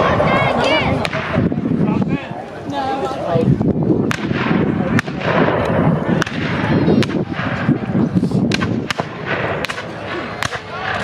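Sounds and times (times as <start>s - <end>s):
murmur of voices: 0.0s - 11.0s
blank gunshots: 4.1s - 7.9s, 8.5s - 11.0s.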